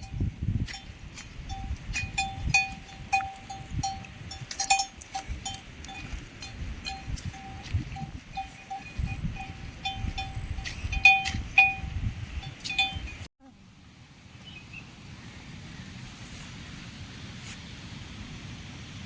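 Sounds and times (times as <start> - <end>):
livestock bell clanking: 0.0 - 13.3.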